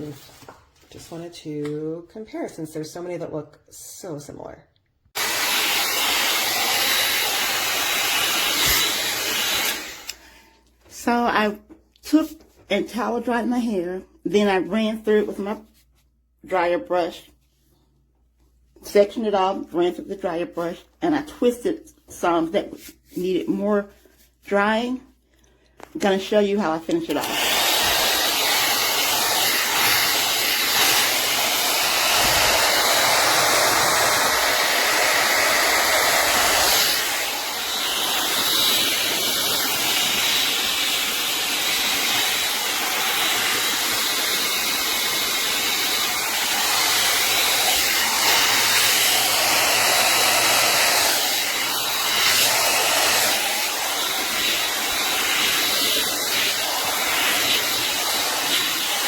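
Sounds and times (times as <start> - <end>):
hot air brush fan rush: 5.2 - 10.3, 27.1 - 59.0.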